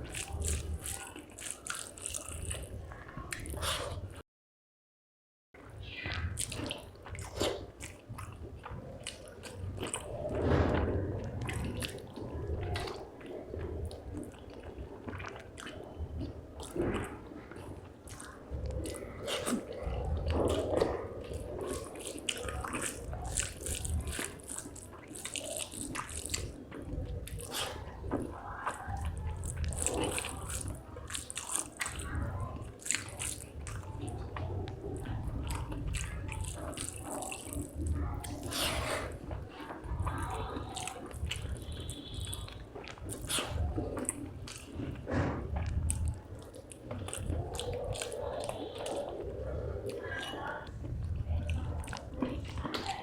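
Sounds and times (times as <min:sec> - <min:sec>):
close-up chewing food: 0:00.0 - 0:04.2, 0:05.8 - 0:53.0.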